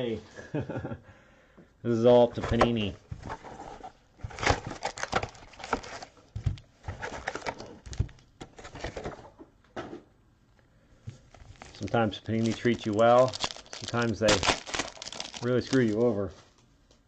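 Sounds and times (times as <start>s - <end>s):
rustling of card packaging: 2.3s - 9.3s, 11.1s - 16.6s.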